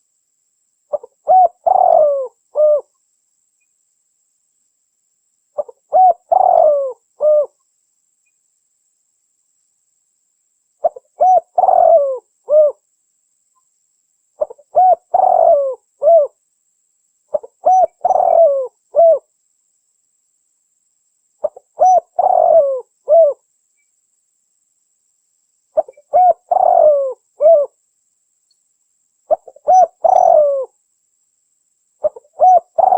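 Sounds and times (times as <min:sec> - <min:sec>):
dove cooing: 0:00.9 - 0:02.9, 0:05.6 - 0:07.6, 0:10.8 - 0:12.8, 0:14.4 - 0:16.4, 0:17.3 - 0:19.3, 0:21.4 - 0:23.4, 0:25.8 - 0:27.8, 0:29.3 - 0:30.8, 0:32.0 - 0:32.9.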